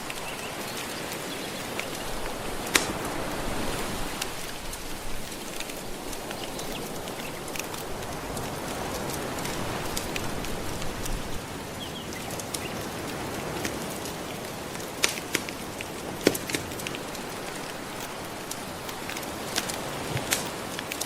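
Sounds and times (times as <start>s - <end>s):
gentle ocean waves: 0.0s - 21.0s
wood fire crackling and popping: 0.0s - 21.0s.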